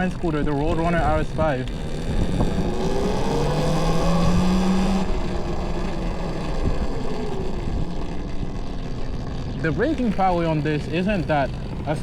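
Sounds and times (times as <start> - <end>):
wind on microphone: 0.0 - 9.6
electric motor whining: 0.7 - 10.1.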